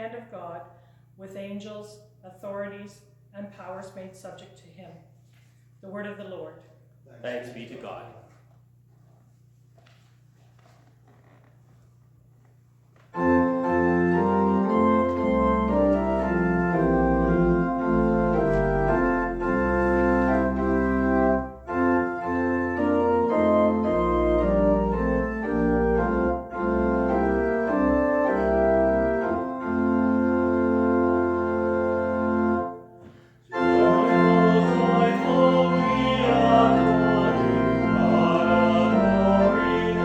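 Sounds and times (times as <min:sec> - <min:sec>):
faint hum: 0:00.0 - 0:27.5
church organ chords: 0:13.1 - 0:40.0.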